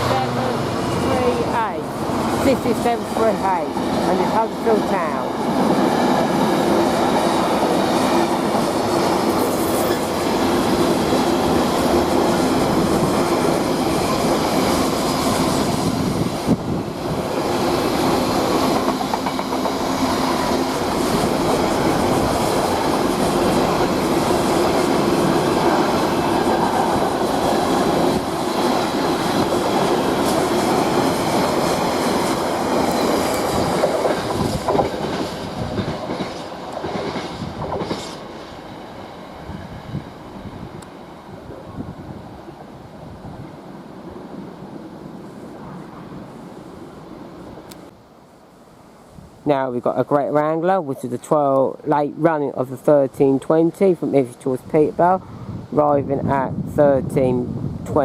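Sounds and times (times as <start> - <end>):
train wheels on rails: 0.0 - 42.7
diesel locomotive passing: 0.0 - 47.9.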